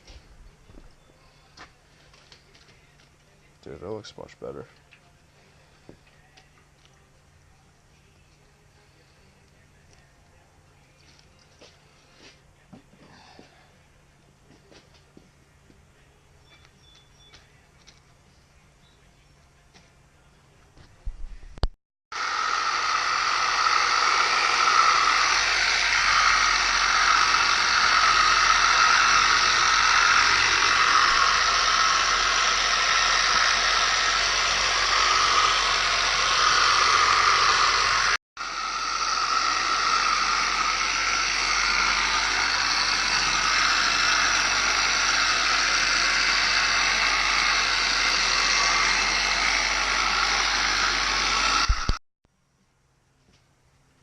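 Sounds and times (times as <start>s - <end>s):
electric power sander whining: 22.1s - 52.0s.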